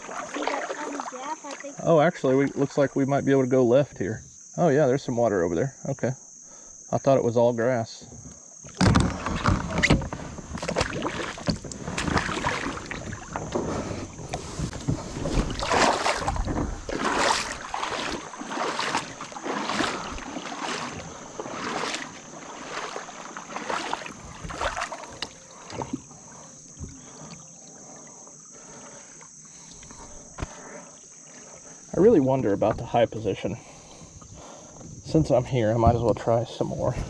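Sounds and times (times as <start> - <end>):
high insect drone: 0.0 - 37.0
kayak swishing through grass: 9.0 - 25.7.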